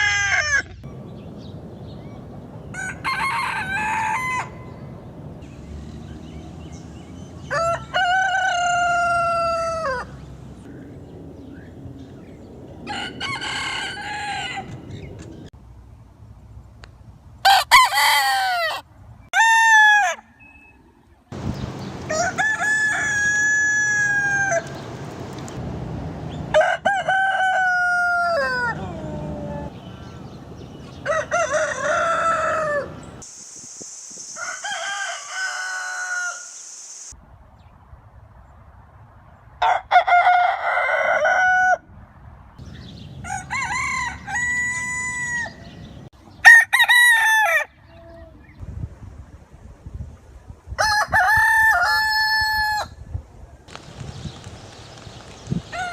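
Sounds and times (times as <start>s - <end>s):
rooster crowing: 2.7s - 4.8s, 7.4s - 10.1s, 12.8s - 14.8s, 17.4s - 18.8s, 22.1s - 24.8s, 26.5s - 29.7s, 31.0s - 33.1s, 34.4s - 36.6s, 39.6s - 41.8s, 43.2s - 45.7s, 46.4s - 47.8s, 50.8s - 53.0s
steady high hiss: 33.1s - 37.2s.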